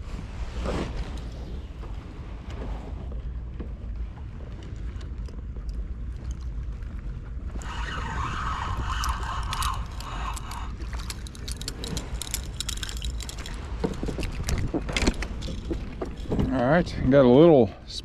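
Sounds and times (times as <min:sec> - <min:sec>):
wind rumbling on microphone: 0:00.0 - 0:18.0
rapid clicks and rattles: 0:09.0 - 0:16.5.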